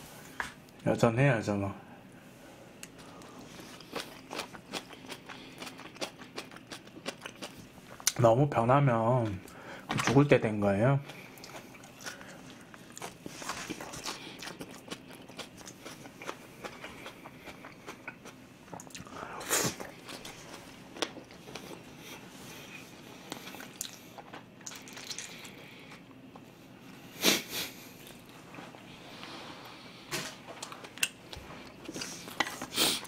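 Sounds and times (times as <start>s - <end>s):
person chewing food: 2.8s - 8.2s, 11.0s - 26.5s, 27.8s - 29.8s, 30.6s - 33.0s.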